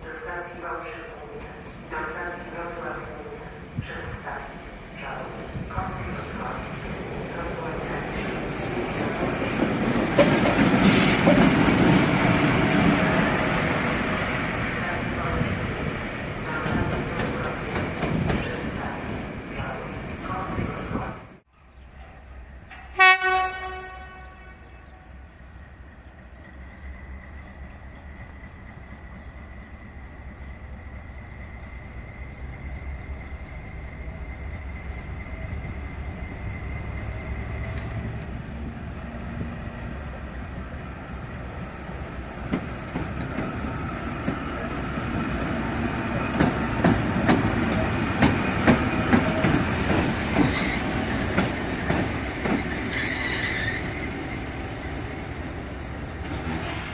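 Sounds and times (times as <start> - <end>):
freight train rumbling: 0.0 - 56.9
locomotive horn blast: 23.0 - 25.2.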